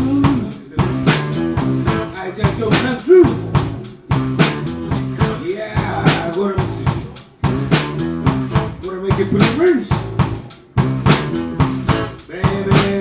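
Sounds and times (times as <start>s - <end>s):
bending lead guitar notes: 0.0s - 5.4s, 7.4s - 12.3s
drum kit steady beat: 0.0s - 13.0s
rock band playing: 0.0s - 13.0s.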